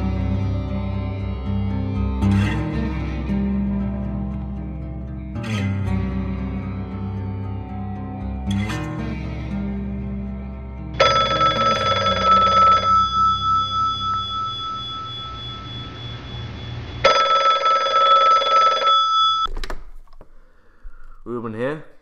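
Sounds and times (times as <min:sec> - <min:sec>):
soft guitar music: 0:00.0 - 0:17.1
telephone bell ringing: 0:11.0 - 0:19.5.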